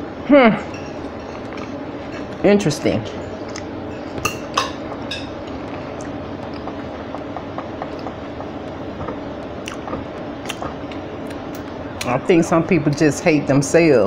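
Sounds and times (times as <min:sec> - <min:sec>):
chewing with mouth clicks: 0:03.4 - 0:03.7, 0:04.9 - 0:11.8.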